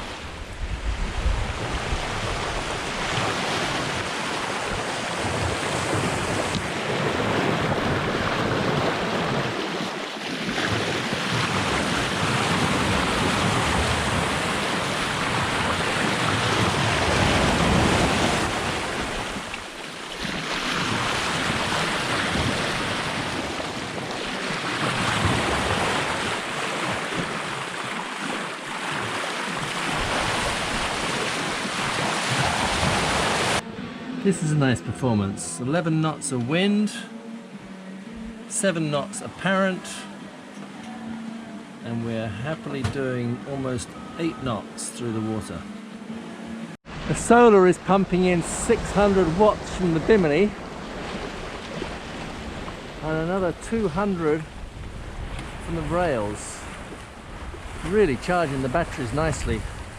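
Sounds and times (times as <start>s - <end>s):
wind on microphone: 0.0s - 19.6s, 54.4s - 59.9s
water rushing along hull: 0.0s - 59.9s.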